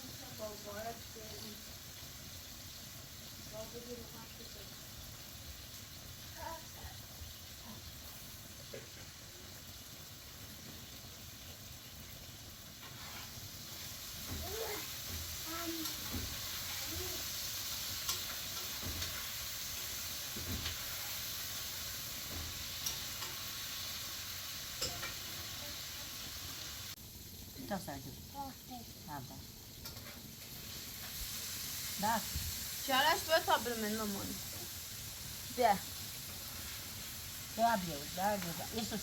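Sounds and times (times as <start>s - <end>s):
steady hiss: 0.0s - 39.0s.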